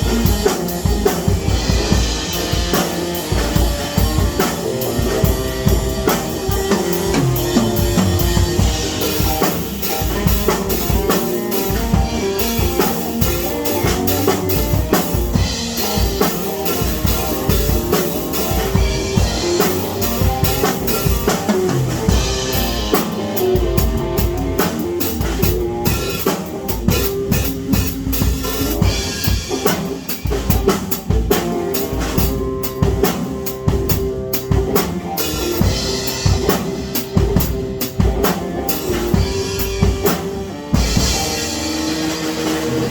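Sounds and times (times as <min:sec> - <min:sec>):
drum kit playing: 0:00.0 - 0:42.9
pitched instruments: 0:00.0 - 0:42.9.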